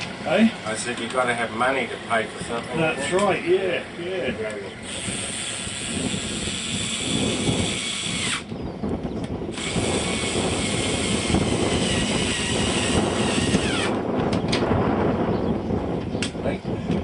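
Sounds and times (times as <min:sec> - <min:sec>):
model jet turbine whining: 0:04.4 - 0:08.6, 0:09.5 - 0:14.1.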